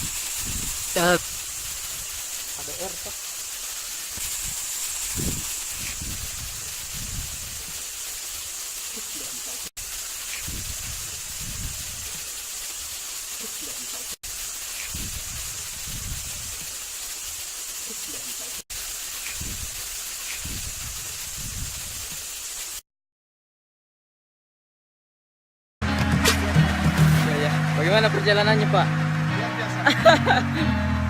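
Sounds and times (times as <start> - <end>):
wind buffeting microphone: 0.0 - 2.2, 4.4 - 7.6, 10.4 - 12.1, 14.9 - 16.6, 20.4 - 22.0
running water hiss: 0.0 - 22.8.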